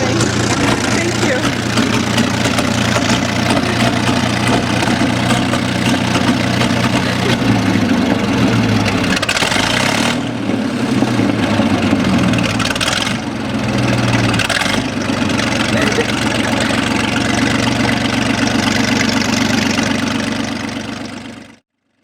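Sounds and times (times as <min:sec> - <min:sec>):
tank engine running: 0:00.0 - 0:21.6.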